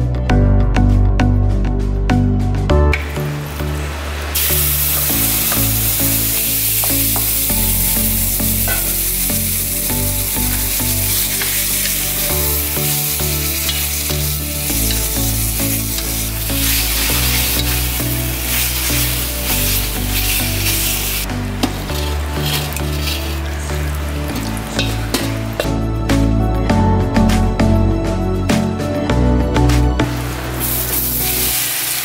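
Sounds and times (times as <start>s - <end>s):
background music: 0.0s - 32.0s
meat sizzling in a hot pan: 4.4s - 25.4s, 30.6s - 32.0s.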